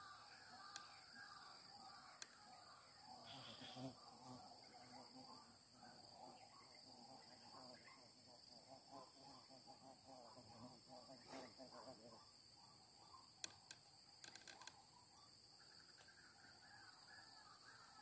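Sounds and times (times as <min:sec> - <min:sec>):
faint calls: 0:00.0 - 0:18.0
insects chirring: 0:00.0 - 0:18.0
faint sharp clicks: 0:00.6 - 0:00.9, 0:02.2 - 0:02.4, 0:13.4 - 0:14.8.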